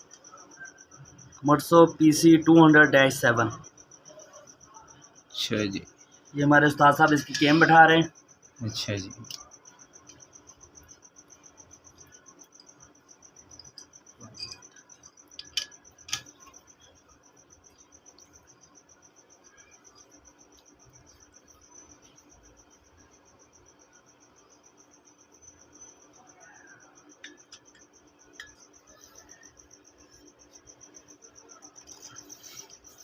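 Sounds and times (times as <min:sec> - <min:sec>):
cricket chirping: 0:00.0 - 0:33.0.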